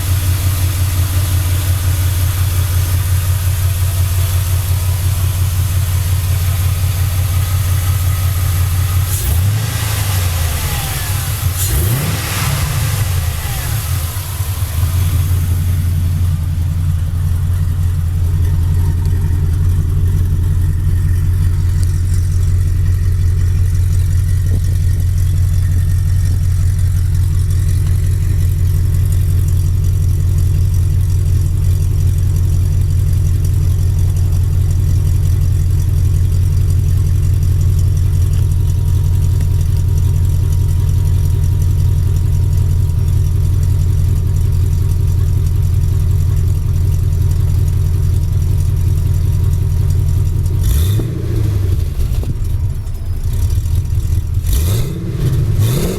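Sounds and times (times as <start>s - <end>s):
engine idling: 0.0s - 55.9s.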